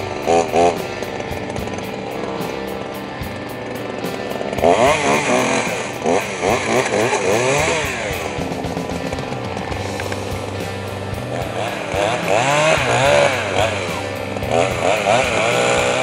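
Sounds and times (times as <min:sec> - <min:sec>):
distorted electric guitar: 0:00.0 - 0:16.0
drum beat: 0:00.0 - 0:16.0.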